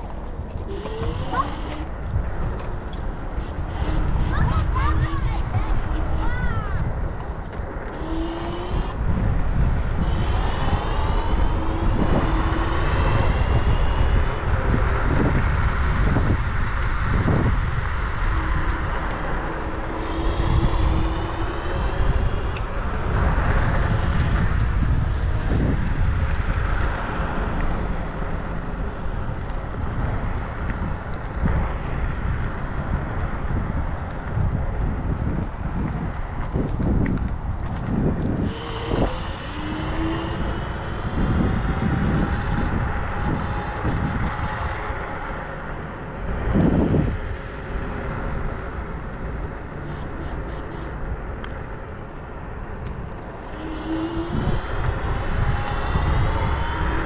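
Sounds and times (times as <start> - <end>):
faint whine: 0.0 - 57.0
wind buffeting microphone: 0.0 - 57.0.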